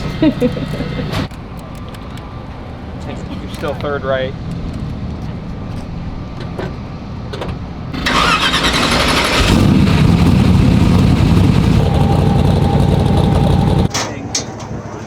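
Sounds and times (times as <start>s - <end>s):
drag car engine running: 0.0s - 1.3s, 8.0s - 13.9s.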